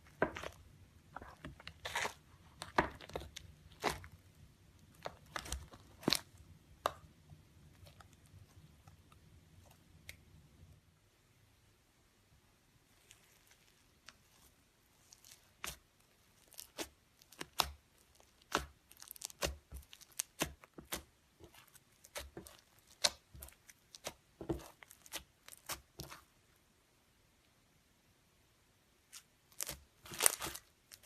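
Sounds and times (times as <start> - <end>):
slime crackling and popping: 13.0 - 26.3, 29.1 - 31.0.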